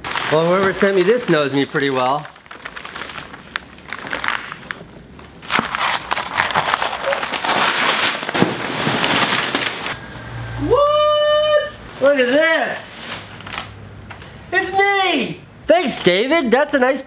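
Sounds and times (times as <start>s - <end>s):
packaging torn and crinkled: 0.0s - 10.0s.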